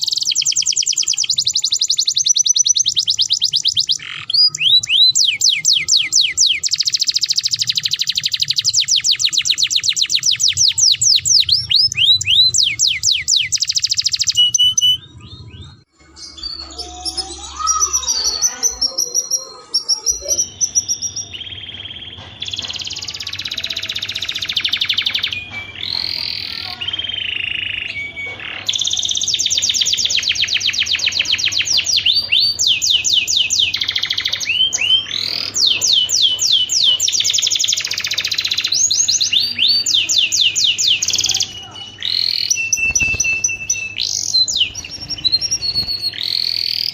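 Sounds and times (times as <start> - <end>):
canary singing trills: 0.0 - 46.9.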